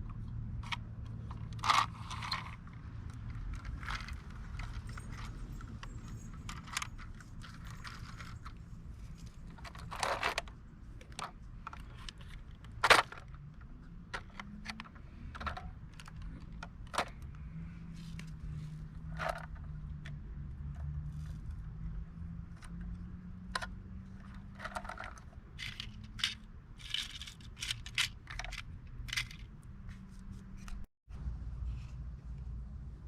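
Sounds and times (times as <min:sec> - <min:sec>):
clicks and taps of toy parts: 0:23.5 - 0:29.5.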